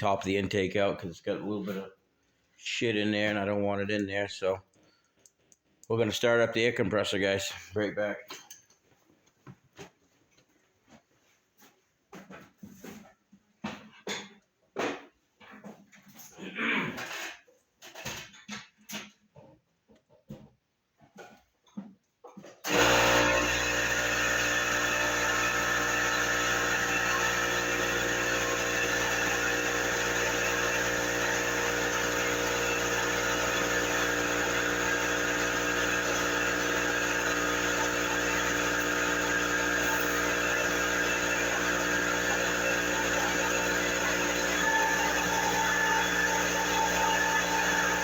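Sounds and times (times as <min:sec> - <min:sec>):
air compressor running: 0:22.6 - 0:48.0.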